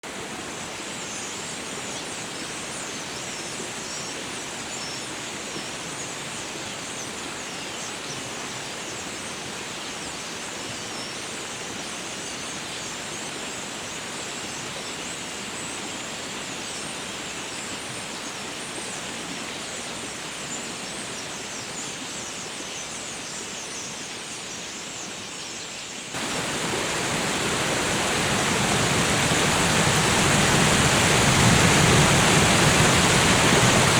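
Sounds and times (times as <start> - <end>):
river rushing: 0.0 - 7.0, 26.1 - 33.9.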